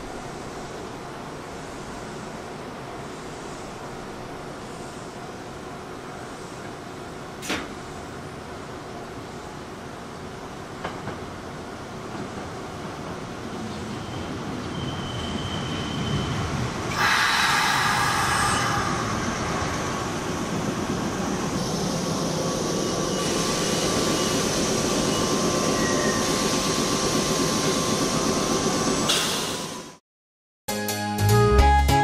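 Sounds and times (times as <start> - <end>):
train wheel-on-rail noise: 0.0 - 30.0
train brake squeal: 13.9 - 19.2, 22.6 - 28.0, 28.9 - 30.0.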